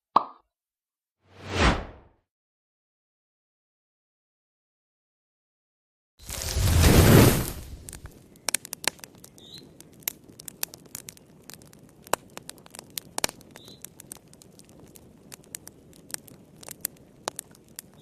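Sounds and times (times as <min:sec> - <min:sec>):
wood fire crackling: 0:06.2 - 0:18.0
faint high chirp: 0:09.4 - 0:09.8.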